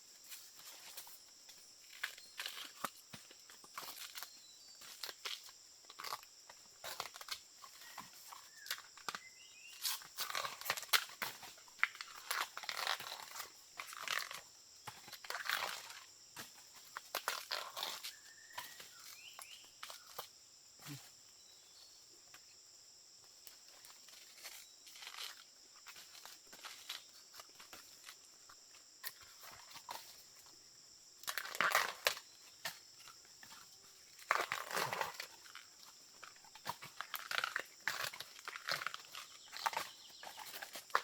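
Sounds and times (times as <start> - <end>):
high insect drone: 0.0 - 41.0
dry vegetation rustling and snapping: 36.2 - 41.0.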